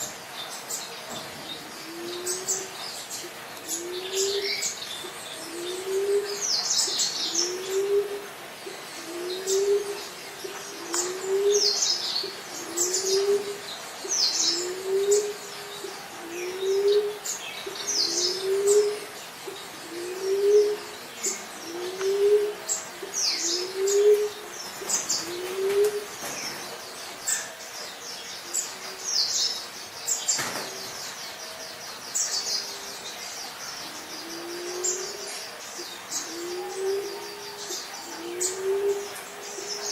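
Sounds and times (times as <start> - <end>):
small birds chirping: 0.0 - 39.9
dove cooing: 1.0 - 26.8, 33.8 - 39.9.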